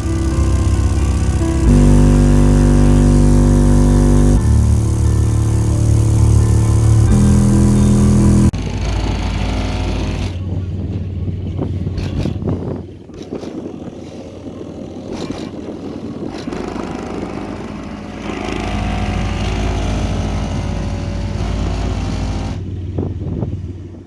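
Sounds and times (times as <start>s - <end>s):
subwoofer deep bass rumble: 0.0s - 8.6s.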